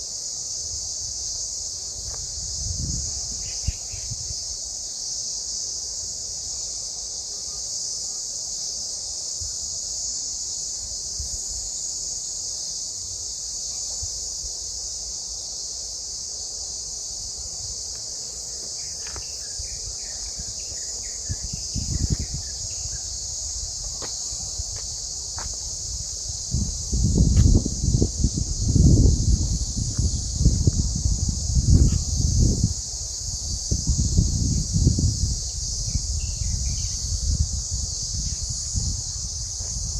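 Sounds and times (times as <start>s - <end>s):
cicadas singing: 0.0s - 39.9s
low rumble on microphone: 19.6s - 39.9s.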